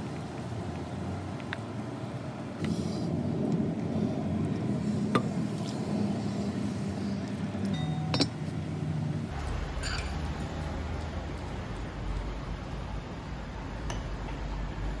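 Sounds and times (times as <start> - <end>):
sharp clinks: 9.8 - 10.7.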